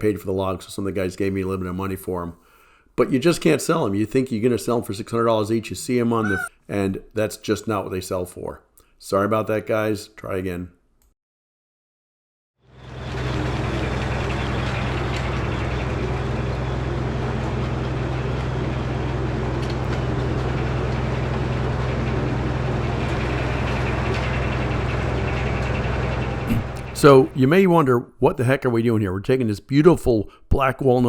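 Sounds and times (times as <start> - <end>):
sawmill engine running: 12.7 - 27.6.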